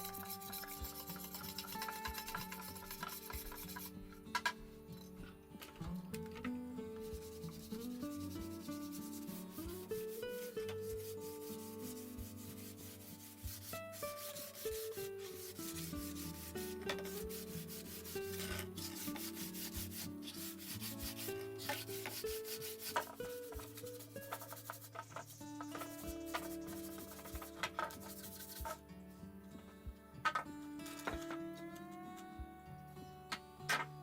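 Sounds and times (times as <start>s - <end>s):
scratchy rubbing texture: 0.0s - 4.0s, 7.0s - 28.8s
background music melody: 0.0s - 34.0s.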